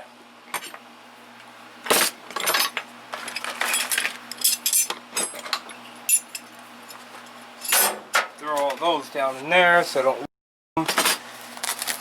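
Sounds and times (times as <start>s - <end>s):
metal tools clinking: 2.3s - 7.0s.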